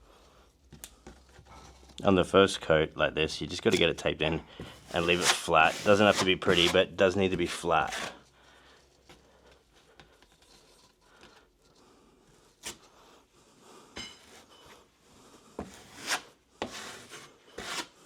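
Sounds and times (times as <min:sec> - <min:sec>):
drywall knife scraping: 0:03.5 - 0:09.3, 0:09.9 - 0:13.1, 0:14.2 - 0:18.0.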